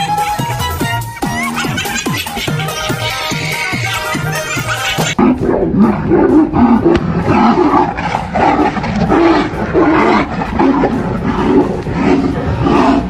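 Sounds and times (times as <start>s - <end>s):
electronic music: 0.0s - 13.0s
animals growling and roaring: 3.0s - 13.0s.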